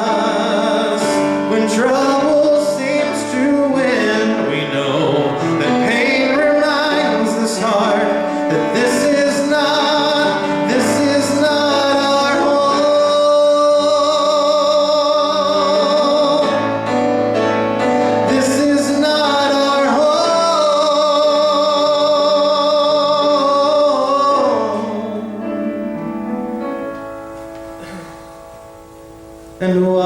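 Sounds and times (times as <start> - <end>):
man singing with vibrato: 0.0 - 27.3, 29.3 - 30.0
piano accompaniment: 0.0 - 30.0.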